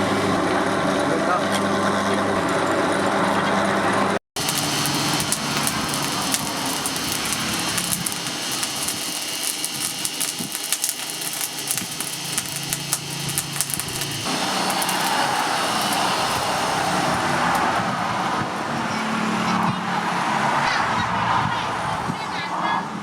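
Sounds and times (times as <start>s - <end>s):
motor running: 0.0s - 17.9s
rapid small clicks: 4.4s - 16.5s.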